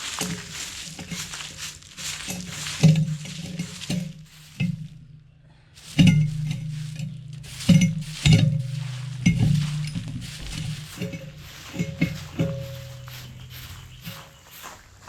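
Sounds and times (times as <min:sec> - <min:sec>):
steady low hum: 0:04.4 - 0:14.4
metal tool knocking and scraping: 0:05.9 - 0:14.2.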